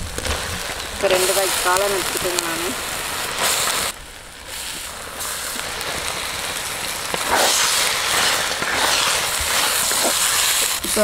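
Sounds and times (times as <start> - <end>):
mushrooms sizzling in hot oil: 0.0 - 11.0
spatula stirring: 7.2 - 11.0.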